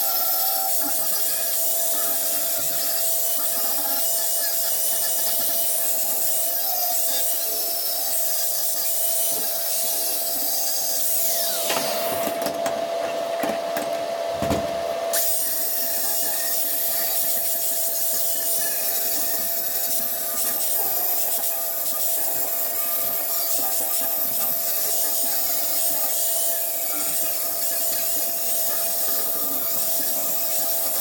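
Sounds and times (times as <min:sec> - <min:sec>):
power tool sanding steel: 0:00.0 - 0:12.2, 0:15.2 - 0:31.0.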